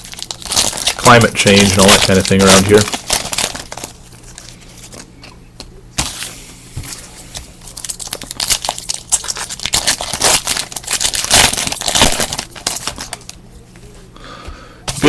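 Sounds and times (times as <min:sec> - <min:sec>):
card wrappers crinkling and tearing: 0:00.0 - 0:05.1, 0:07.3 - 0:13.4.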